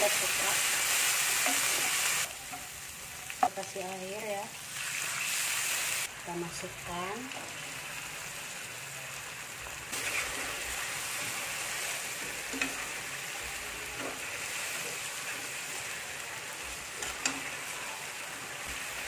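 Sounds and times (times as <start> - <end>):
food sizzling in a wok: 0.0 - 19.0
metal spatula stirring: 16.8 - 17.8.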